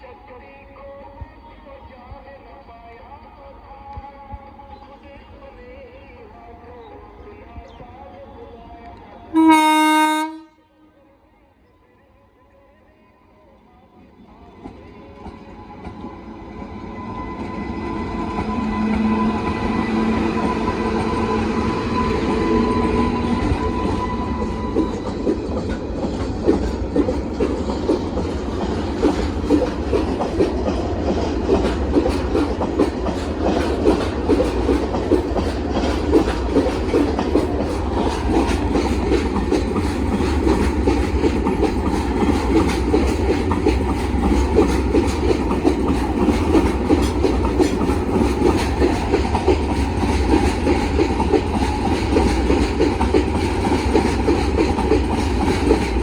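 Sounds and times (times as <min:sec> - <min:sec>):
freight train wagons rolling: 0:14.6 - 0:56.0
wheels clacking over rail joints: 0:24.8 - 0:56.0.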